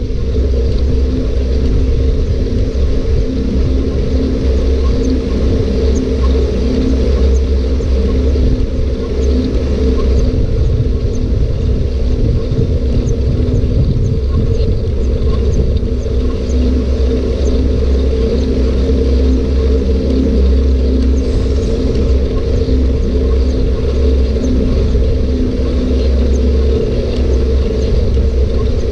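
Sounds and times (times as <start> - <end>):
bike rumbling in motion: 0.0 - 28.9
constant hum: 0.0 - 28.9.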